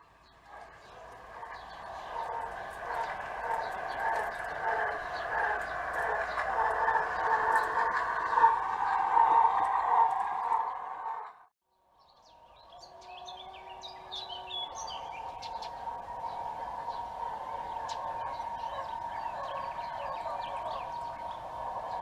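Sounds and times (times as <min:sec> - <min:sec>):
birds chirping: 0:00.0 - 0:10.6, 0:12.0 - 0:22.0.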